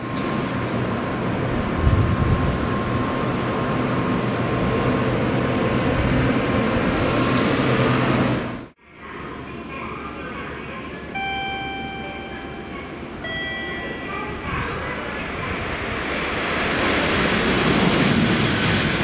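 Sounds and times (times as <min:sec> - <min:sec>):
train mechanical hum and rumble: 0:00.0 - 0:19.0
thin high tone: 0:11.1 - 0:15.1.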